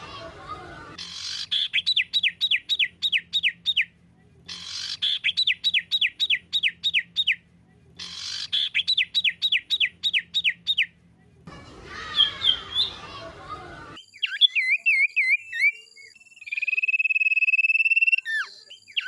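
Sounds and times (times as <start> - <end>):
songbird whistled song: 0.9 - 3.9, 4.5 - 7.4, 8.0 - 11.0, 11.6 - 19.0
busy bird call: 11.5 - 14.6.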